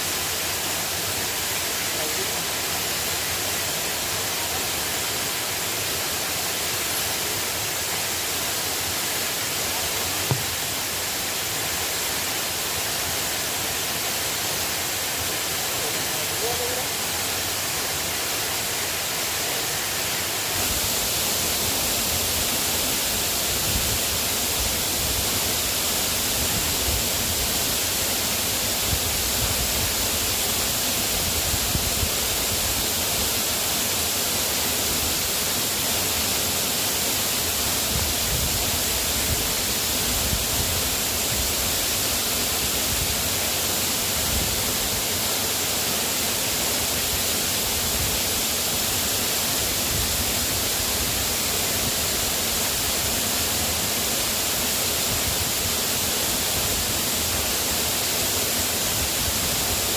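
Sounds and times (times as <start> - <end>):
light rain hissing: 0.0 - 59.9
faint taps: 10.3 - 10.5.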